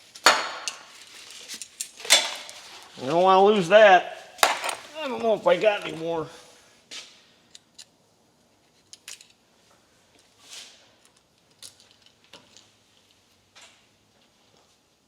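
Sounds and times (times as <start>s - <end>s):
small metal parts clinking: 8.7s - 9.4s, 11.0s - 12.6s.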